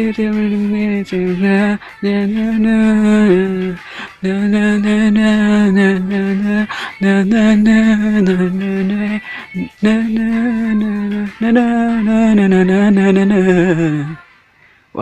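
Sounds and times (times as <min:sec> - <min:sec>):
pop song with singing: 0:00.0 - 0:15.0.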